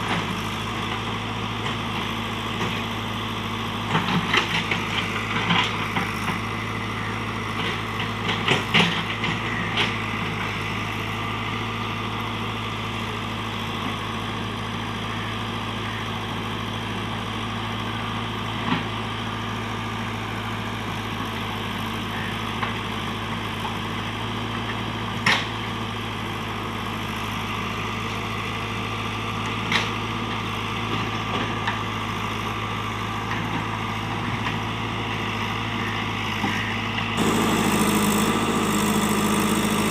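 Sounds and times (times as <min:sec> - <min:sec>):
diesel engine running at low revs: 0:00.0 - 0:39.9.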